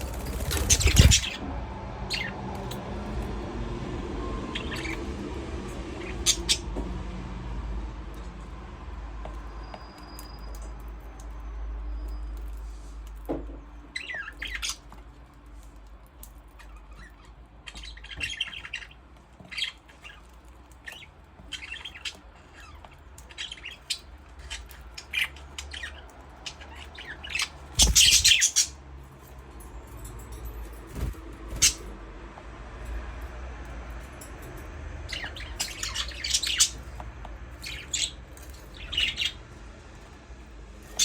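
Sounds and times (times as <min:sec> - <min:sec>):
budgerigars chirping: 0:00.5 - 0:01.4, 0:04.5 - 0:05.1, 0:05.9 - 0:06.7, 0:14.0 - 0:14.8, 0:16.6 - 0:20.2, 0:20.8 - 0:28.8, 0:31.0 - 0:31.9, 0:35.1 - 0:37.0, 0:37.6 - 0:39.4.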